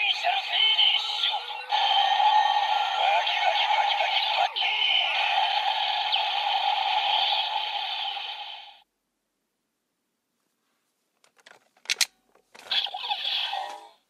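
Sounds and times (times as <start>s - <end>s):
electronic toy hissing ringing: 0.2s - 8.8s.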